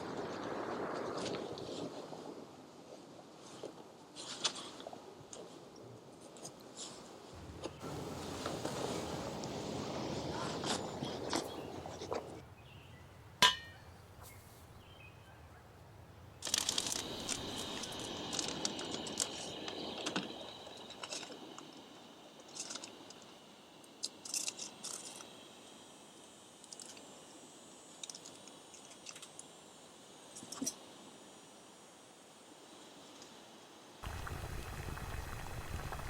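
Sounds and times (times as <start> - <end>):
crackling crunching rustle: 16.4 - 21.6, 34.0 - 36.0.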